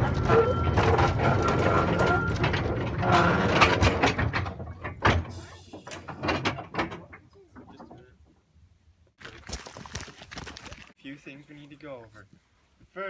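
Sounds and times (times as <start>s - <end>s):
thin steady squeal: 0.0s - 3.5s
small train rumbling and clanking: 0.0s - 8.4s.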